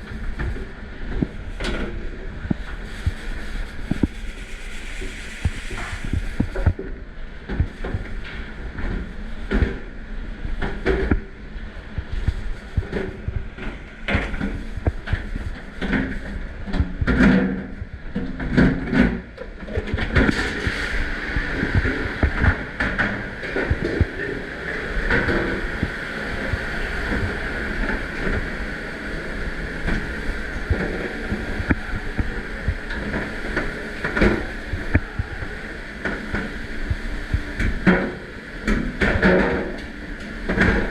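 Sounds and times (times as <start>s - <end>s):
machine noise: 0.0s - 40.9s
rushing water: 19.5s - 40.9s.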